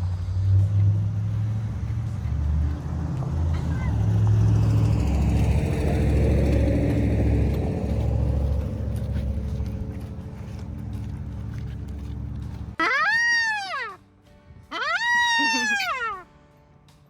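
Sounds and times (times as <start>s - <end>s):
vehicle passing by: 0.0s - 12.8s.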